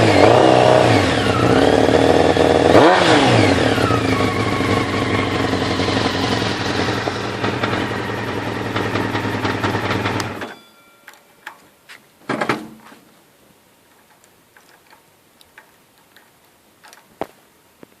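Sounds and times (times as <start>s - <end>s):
motorcycle engine running: 0.0s - 10.6s
small clicks: 13.9s - 18.0s.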